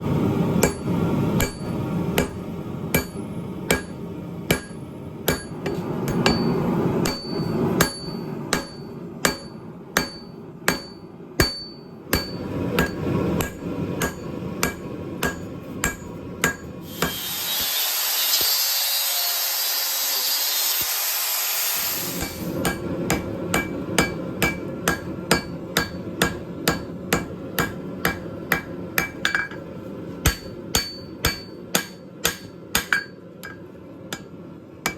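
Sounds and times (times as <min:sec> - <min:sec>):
hammer striking metal on anvil: 0:00.6 - 0:17.8, 0:22.1 - 0:34.9.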